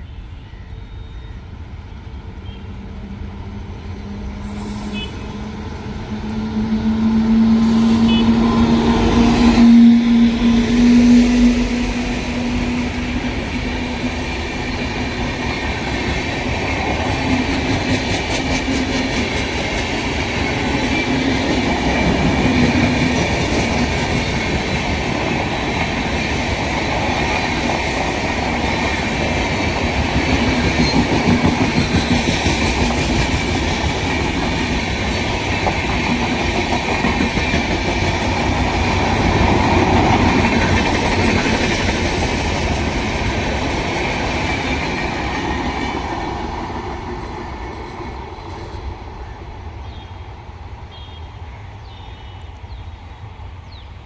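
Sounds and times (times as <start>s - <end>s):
train wheels clattering over rails: 5.8s - 49.0s.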